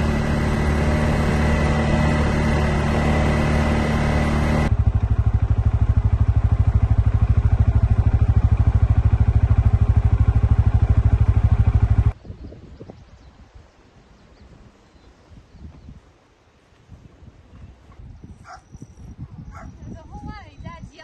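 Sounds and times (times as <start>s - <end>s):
engine idling: 0.0s - 12.2s
faint outdoor ambience: 0.0s - 21.0s.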